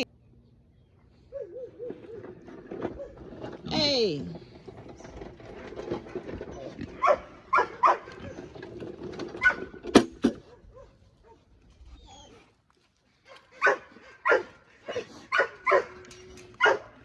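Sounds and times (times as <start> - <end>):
dog barking: 1.3 - 2.0, 7.0 - 8.1, 10.5 - 11.4, 13.3 - 16.0, 16.6 - 17.0.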